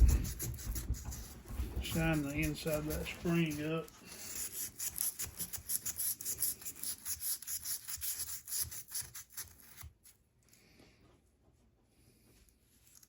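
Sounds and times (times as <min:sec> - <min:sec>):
sandpaper scratching pocketknife: 0:00.0 - 0:10.2.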